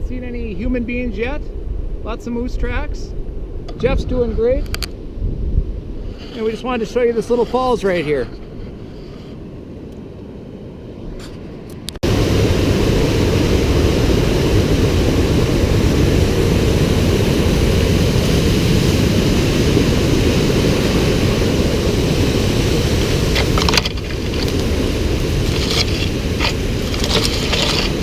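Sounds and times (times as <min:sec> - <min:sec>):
waterfall rushing water: 0:12.1 - 0:28.0.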